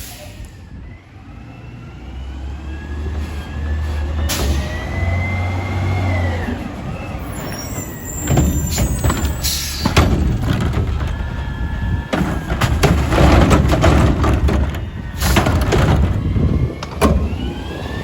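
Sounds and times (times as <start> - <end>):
air brake hiss: 0.0 - 0.7, 7.4 - 9.9
diesel engine with high whine: 0.0 - 18.0
high squeal: 4.3 - 10.0
metal clanks and bangs: 7.9 - 17.4.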